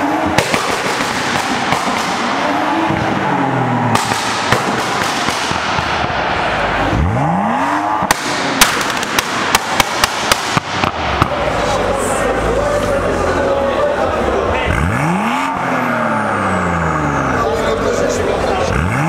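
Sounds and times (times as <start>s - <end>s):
car engine revving: 0.0s - 19.0s
exhaust pops and bangs: 0.2s - 3.3s, 3.9s - 7.1s, 8.0s - 11.6s.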